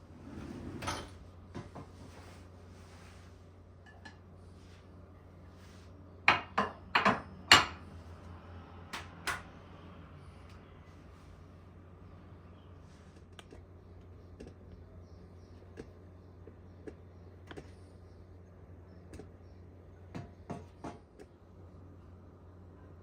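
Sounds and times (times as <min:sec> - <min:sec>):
low steady hum: 0:00.0 - 0:23.0
dishes and cutlery clinking: 0:03.8 - 0:04.2.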